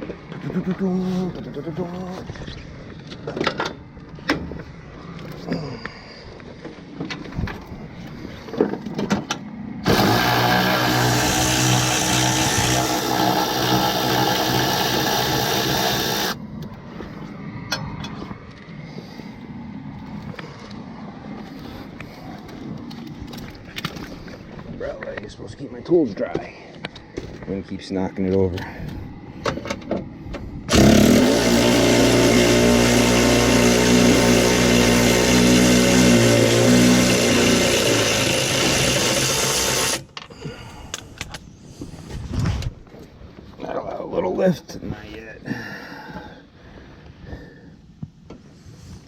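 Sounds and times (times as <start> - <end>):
loud mechanical running noise: 9.8 - 16.4, 30.7 - 40.0.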